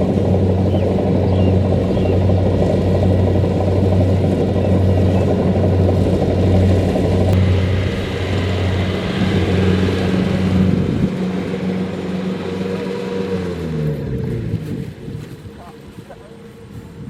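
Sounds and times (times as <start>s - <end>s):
combine harvester diesel engine: 0.0s - 17.0s.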